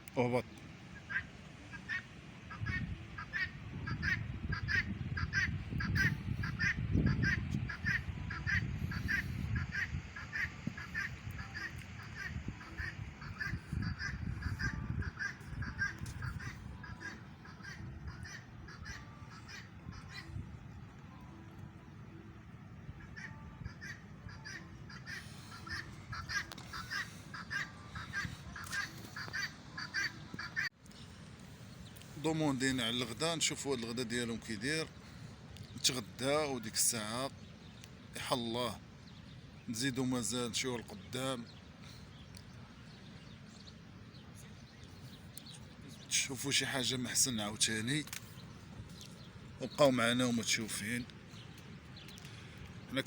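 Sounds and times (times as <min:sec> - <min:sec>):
birds honking harshly: 0:01.0 - 0:30.8.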